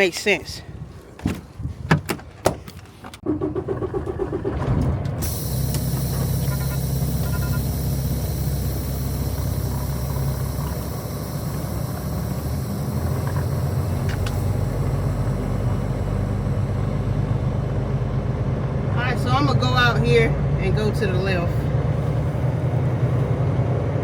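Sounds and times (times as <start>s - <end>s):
diesel truck engine running: 3.2s - 24.0s.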